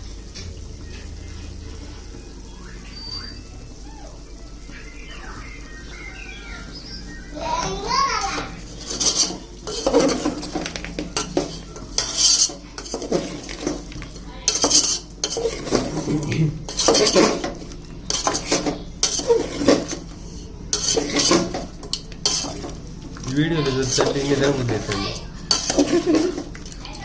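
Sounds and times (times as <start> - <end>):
metal spoon scraping a pan: 8.2 - 22.8, 23.6 - 26.8.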